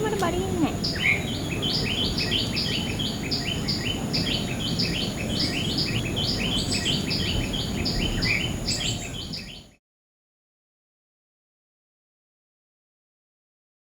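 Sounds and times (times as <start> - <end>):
high insect whine: 0.0 - 9.8
small birds chirping: 0.0 - 9.8.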